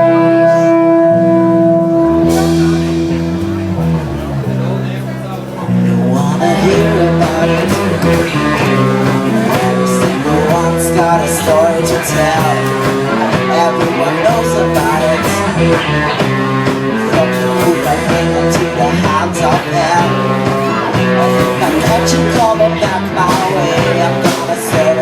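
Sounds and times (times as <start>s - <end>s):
rock band playing: 0.0s - 25.0s
person singing: 5.7s - 25.0s.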